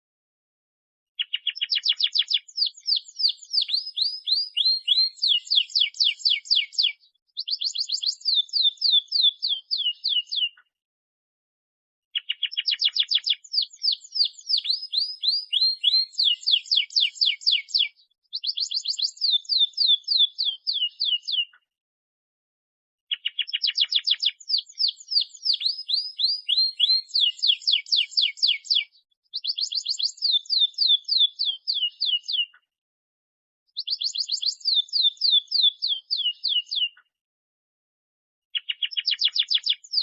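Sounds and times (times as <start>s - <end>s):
canary singing rapid trills: 1.2s - 10.6s, 12.2s - 21.5s, 23.1s - 32.5s, 33.8s - 37.0s.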